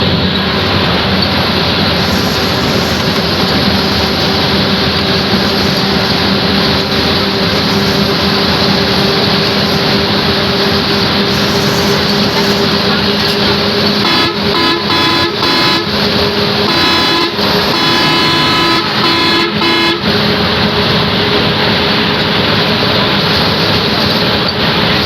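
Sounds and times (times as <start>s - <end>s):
engine drone: 0.0s - 25.0s
road noise: 0.0s - 25.0s
vehicle horn honking: 14.0s - 20.3s.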